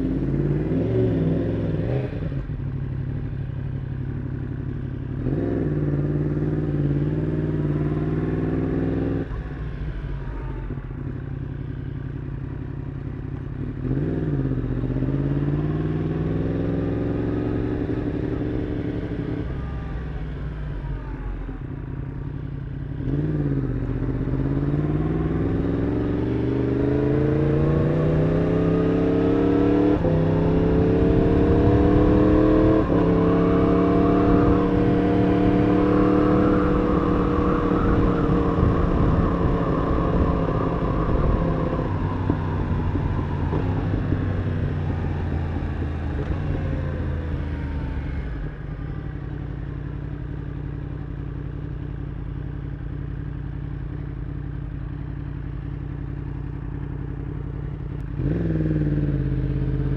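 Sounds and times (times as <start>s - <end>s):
sport bike engine revving: 23.0s - 48.2s, 57.9s - 59.9s
wind rush: 36.4s - 45.9s.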